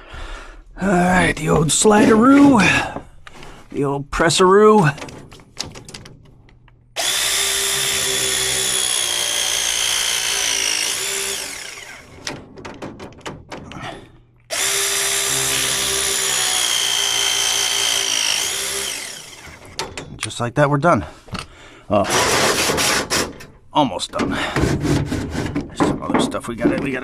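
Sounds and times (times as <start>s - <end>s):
light clicks and rattles: 4.8s - 6.9s
pipe press tool motor whine: 7.0s - 12.4s, 14.5s - 19.8s.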